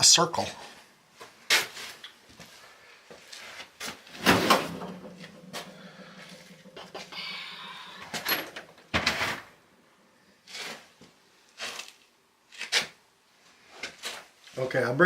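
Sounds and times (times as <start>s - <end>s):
drawers and hardware clattering: 4.1s - 7.0s, 8.2s - 9.5s
faint steady hum: 4.7s - 9.0s.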